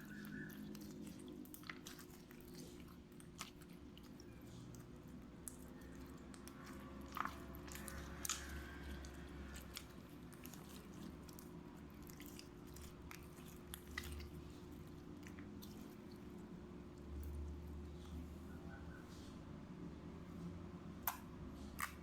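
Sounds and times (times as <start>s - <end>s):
slime squished by hand: 0.0s - 16.5s, 21.0s - 22.0s.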